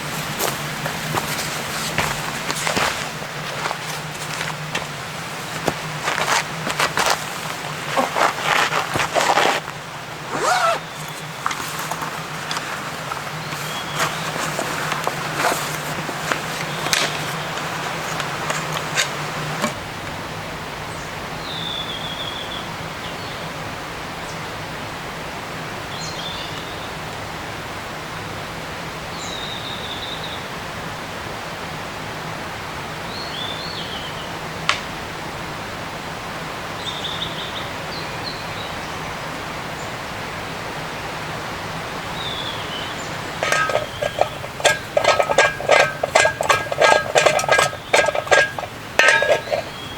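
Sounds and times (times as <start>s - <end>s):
steady rushing hiss: 0.0s - 21.4s
clinks and knocks: 10.3s - 19.8s, 43.4s - 49.9s.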